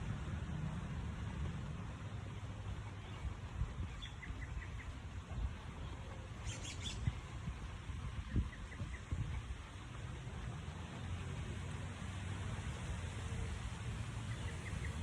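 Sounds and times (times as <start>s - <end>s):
steady low rumble: 0.0s - 15.0s
small birds chirping: 2.8s - 5.0s, 5.8s - 7.3s.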